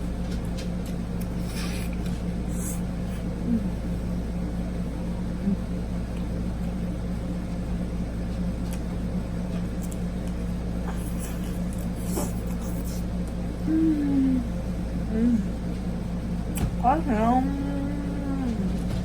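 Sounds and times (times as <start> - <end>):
low machine hum: 0.0 - 19.0
chewing and mouth sounds: 9.7 - 13.4.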